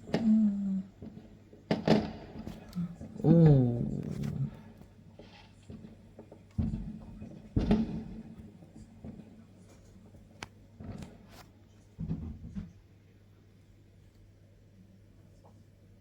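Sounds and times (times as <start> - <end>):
distant fireworks bangs and cracks: 0.0 - 11.4.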